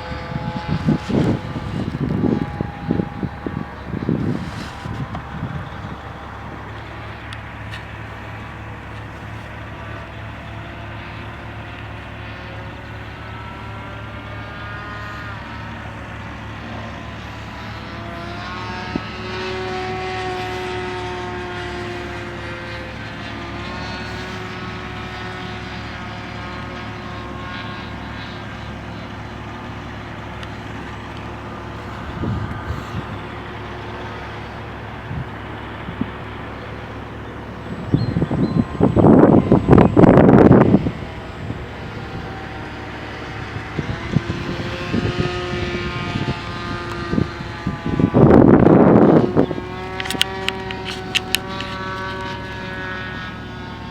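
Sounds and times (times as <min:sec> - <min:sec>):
low rumble: 0:00.0 - 0:11.4
propeller plane flying past: 0:00.0 - 0:53.9.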